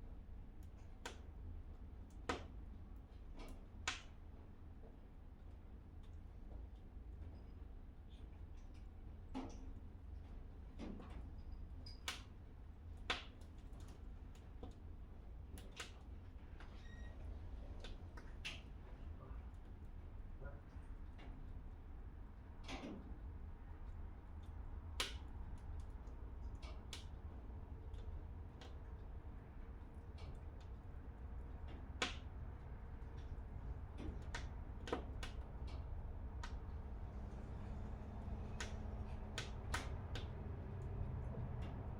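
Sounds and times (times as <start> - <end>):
low rumble of flames: 0.0 - 41.9
wood fire crackling: 23.2 - 41.9.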